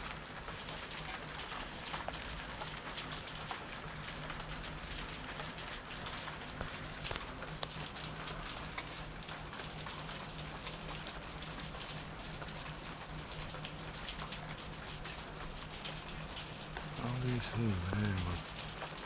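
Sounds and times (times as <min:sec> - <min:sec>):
rain falling: 0:00.2 - 0:19.0.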